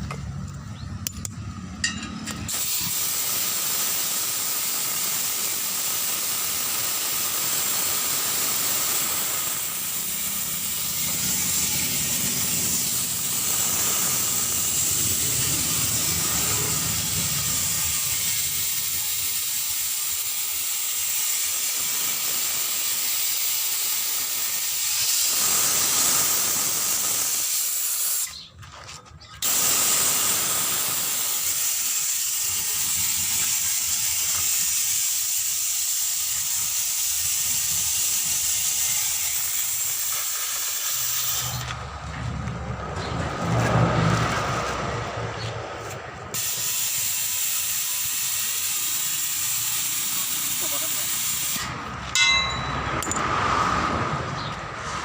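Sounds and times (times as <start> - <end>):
compressed air hissing: 2.4 - 28.5, 29.4 - 41.7, 46.3 - 52.0.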